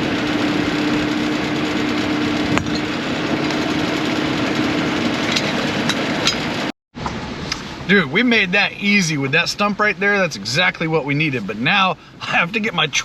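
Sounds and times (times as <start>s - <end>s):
vehicle engine idling: 0.0s - 12.7s.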